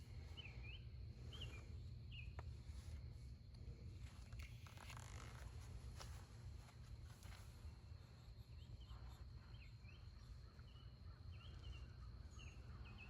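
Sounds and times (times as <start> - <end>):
faint bird chirps: 0.0 - 3.0, 7.2 - 13.0.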